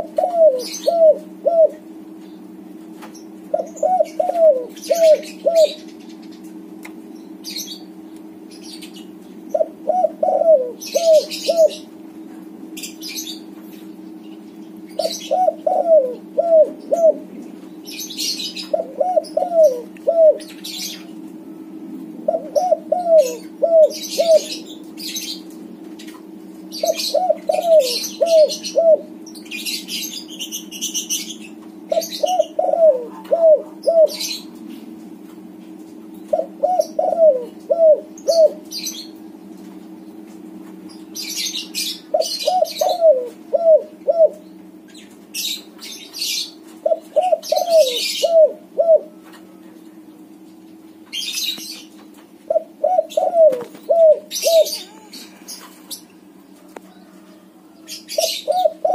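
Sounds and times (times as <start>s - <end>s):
dove cooing: 0.0s - 2.2s, 3.4s - 6.7s, 8.6s - 12.0s, 14.9s - 25.5s, 26.6s - 34.6s, 36.3s - 39.2s, 41.5s - 44.6s, 45.4s - 49.7s, 52.5s - 56.0s, 56.6s - 58.9s.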